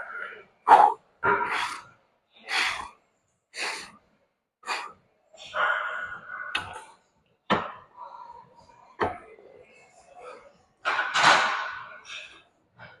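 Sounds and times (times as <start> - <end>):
person breathing hard: 2.5 - 2.9, 3.6 - 3.9, 4.7 - 5.0.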